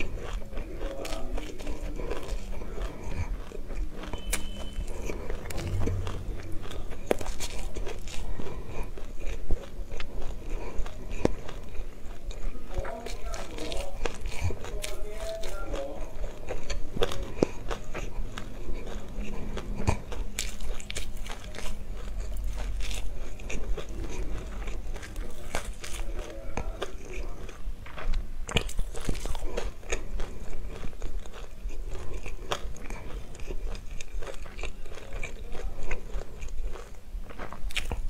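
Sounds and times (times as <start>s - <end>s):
chewing crunchy seeds: 0.0s - 38.0s.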